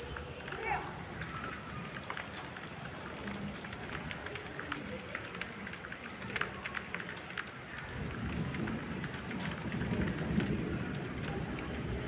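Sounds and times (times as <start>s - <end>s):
heavy rain on hard surface: 0.0s - 12.0s
distant thunder rumble: 7.8s - 12.0s.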